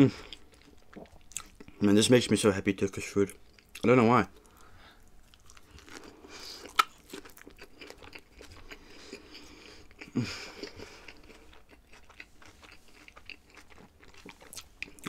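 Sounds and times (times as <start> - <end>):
person chewing food: 0.2 - 1.8, 3.3 - 15.0.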